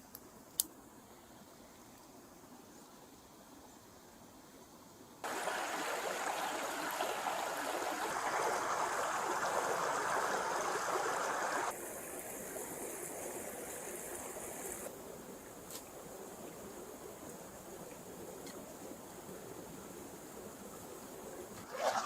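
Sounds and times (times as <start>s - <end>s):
stream water rushing: 5.2s - 14.9s.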